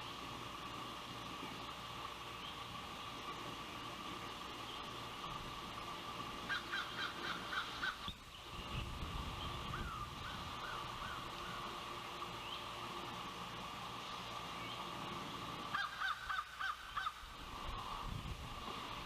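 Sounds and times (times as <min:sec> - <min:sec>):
osprey whistled calls: 0:06.5 - 0:11.7, 0:15.7 - 0:17.2
wind buffeting microphone: 0:08.5 - 0:10.7, 0:17.6 - 0:19.0.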